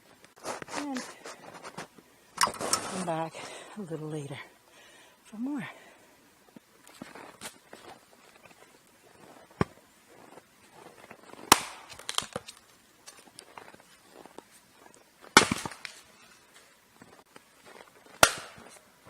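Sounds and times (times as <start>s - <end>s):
axe striking firewood: 11.3s - 12.6s, 15.3s - 16.0s, 18.1s - 18.8s
wood cracking apart: 11.3s - 13.6s, 15.4s - 16.0s.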